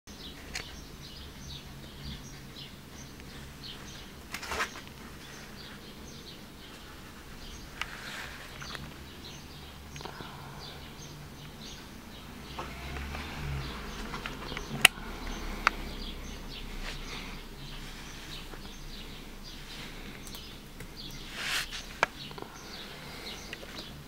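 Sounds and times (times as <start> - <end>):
low steady hum: 0.1 - 24.0
rustle: 3.6 - 5.8, 6.7 - 9.0, 21.0 - 22.3.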